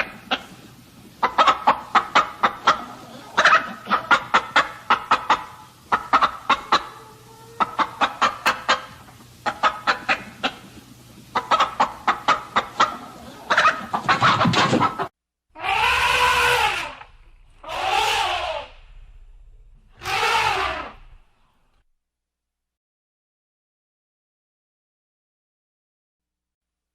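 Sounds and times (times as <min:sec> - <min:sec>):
chicken clucking: 0:00.0 - 0:18.8
animal long calls: 0:15.6 - 0:19.1, 0:19.9 - 0:21.3.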